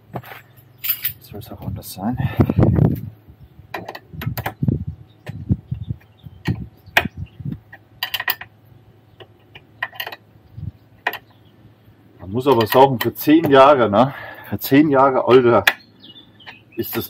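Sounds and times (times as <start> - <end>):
hand tools clinking on metal: 0.2 - 1.3, 12.4 - 13.6, 16.4 - 17.0.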